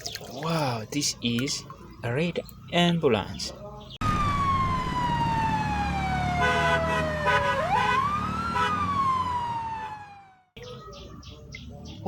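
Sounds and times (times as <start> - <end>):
ambulance siren wailing: 4.0 - 10.6.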